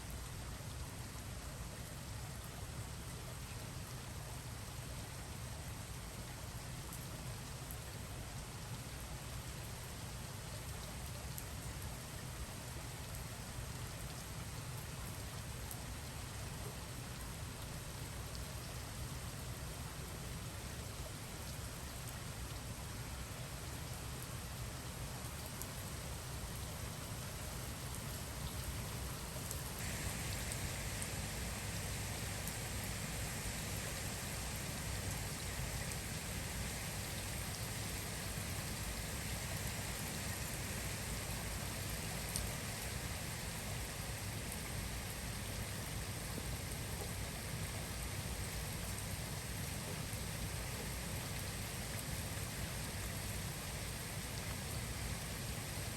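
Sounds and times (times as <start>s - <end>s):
heavy rain falling: 29.4s - 36.2s.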